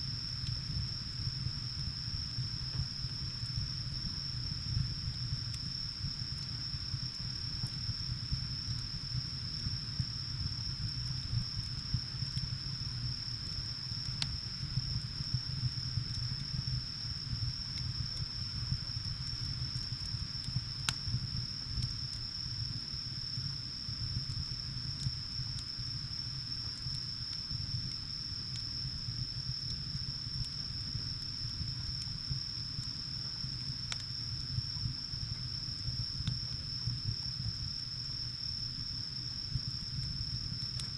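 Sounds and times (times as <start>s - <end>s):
wood fire crackling: 0.1s - 37.5s.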